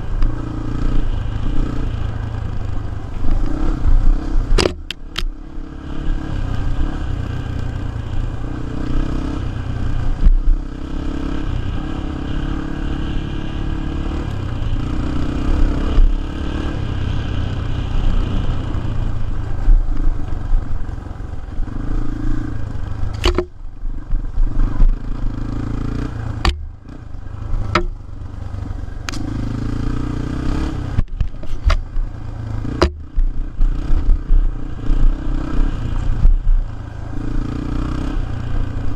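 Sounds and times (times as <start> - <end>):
dirt bike engine revving: 3.4 - 19.2, 29.1 - 31.0
sharp knocks: 23.2 - 23.5, 26.4 - 26.7, 27.7 - 28.0, 32.8 - 33.2.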